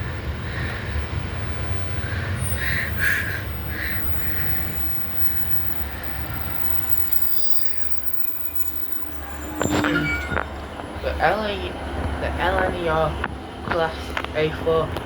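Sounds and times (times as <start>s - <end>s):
train rumbling: 0.0s - 15.0s
train wheels squealing: 2.1s - 10.8s.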